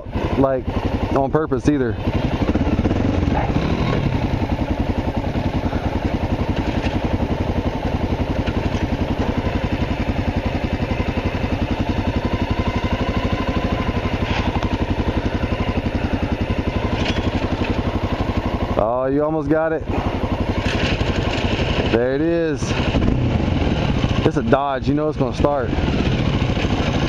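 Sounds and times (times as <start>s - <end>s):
motorcycle engine idling: 0.0s - 27.0s.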